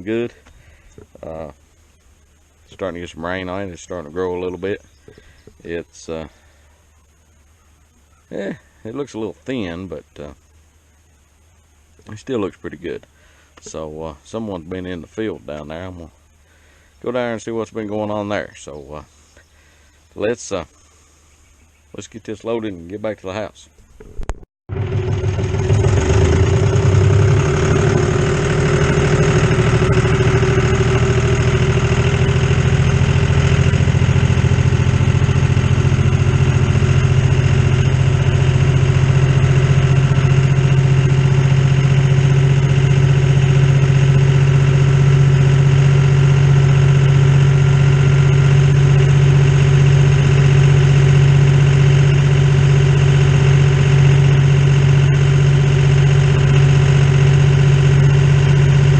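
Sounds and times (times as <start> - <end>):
tractor engine running: 24.2 - 58.9.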